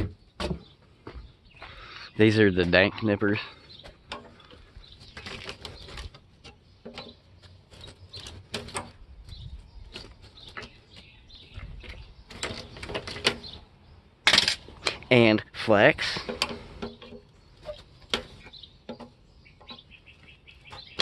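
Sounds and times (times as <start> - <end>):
nippers clicking and snapping metal: 4.1 - 9.0, 11.8 - 13.6, 16.0 - 19.8.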